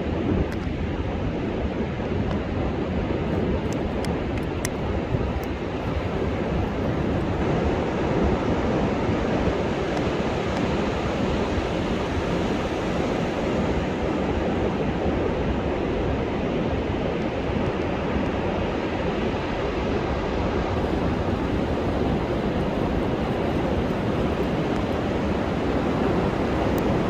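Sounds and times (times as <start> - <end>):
storm surf breaking on beach: 20.8 - 27.0.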